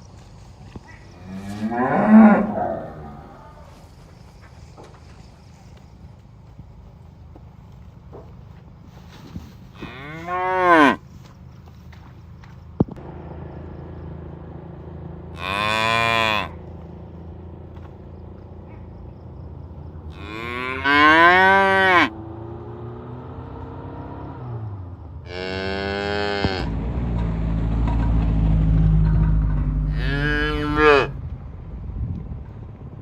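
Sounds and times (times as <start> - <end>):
cattle mooing: 1.0 - 3.8, 9.8 - 11.0, 15.3 - 16.6, 20.1 - 22.2, 25.3 - 26.7, 29.1 - 31.2.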